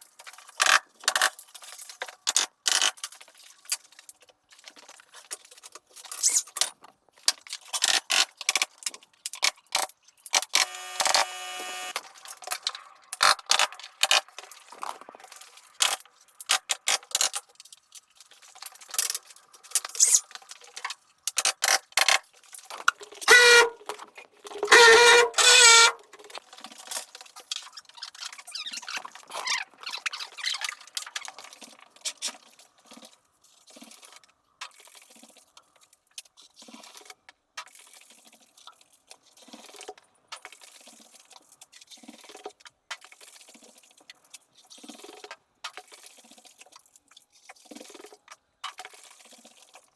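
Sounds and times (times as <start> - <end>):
short motor whines: 10.5 - 12.0.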